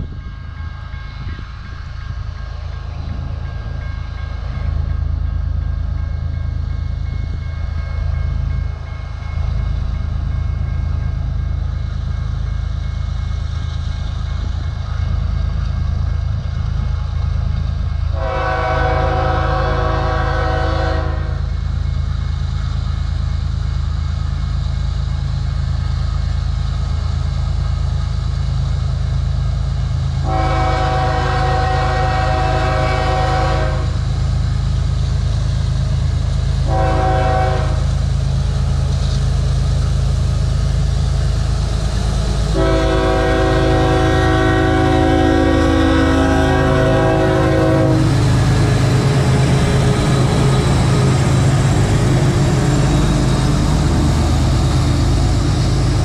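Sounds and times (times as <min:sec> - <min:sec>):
diesel locomotive engines rumbling: 0:00.0 - 0:56.0
train air horn blasts: 0:18.1 - 0:21.5, 0:30.2 - 0:34.1, 0:36.6 - 0:38.0, 0:42.5 - 0:48.6.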